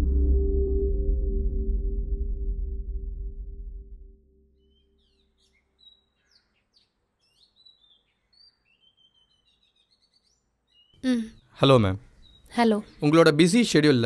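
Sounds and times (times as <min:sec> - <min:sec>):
small birds twittering: 0:04.6 - 0:13.5.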